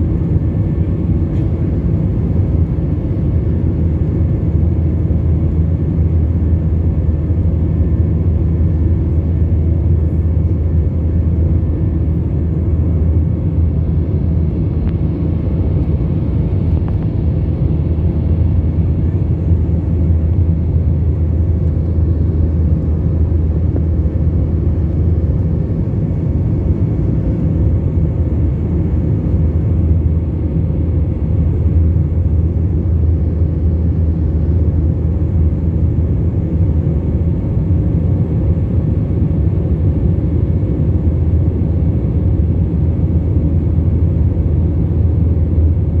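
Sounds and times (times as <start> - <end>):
aircraft cabin engine rumble: 0.0 - 46.0
faint steady hums: 0.0 - 46.0.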